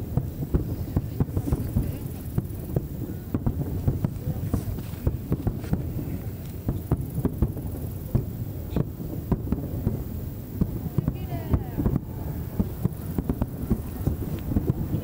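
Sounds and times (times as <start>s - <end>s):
fireworks booming: 0.0s - 15.0s.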